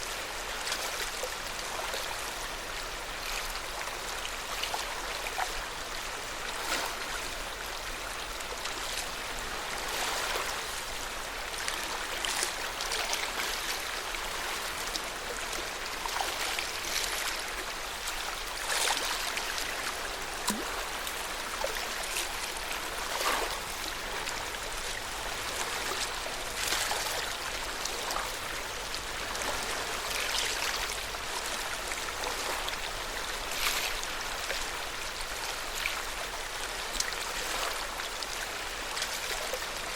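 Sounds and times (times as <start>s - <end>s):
small waves lapping at shore: 0.0s - 39.9s.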